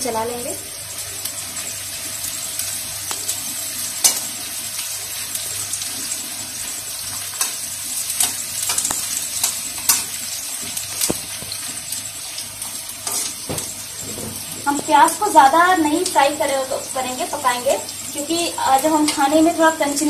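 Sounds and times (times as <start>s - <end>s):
onion sizzling in hot oil: 0.0s - 20.0s.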